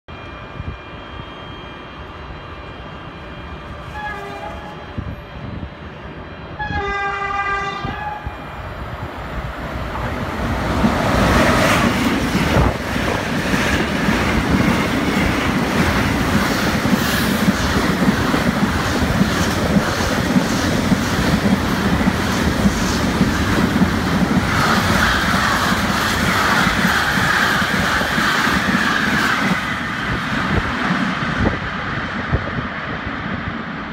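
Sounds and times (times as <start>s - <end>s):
freight train rumbling past: 0.1s - 33.9s
low-tone locomotive horn: 3.5s - 5.7s, 6.5s - 8.6s.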